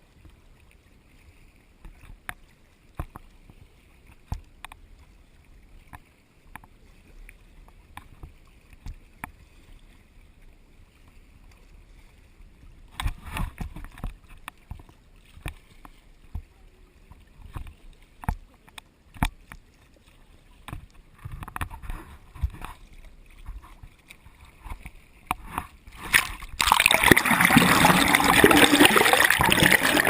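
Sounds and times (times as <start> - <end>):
paddle splashing and knocking: 12.8 - 30.0
water hissing: 26.6 - 30.0.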